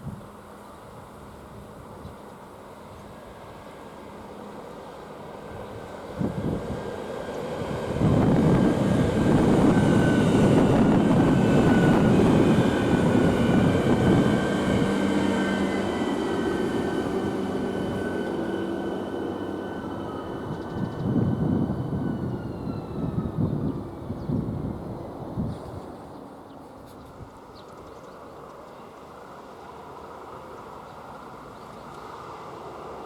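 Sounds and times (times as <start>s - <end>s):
train wheels rumbling: 5.2s - 26.0s
high whining tones: 7.3s - 24.1s.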